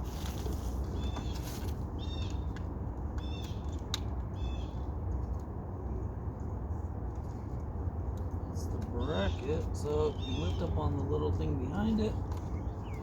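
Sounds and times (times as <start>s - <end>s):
steady low rumble: 0.0s - 13.0s
bird calling: 8.9s - 11.0s.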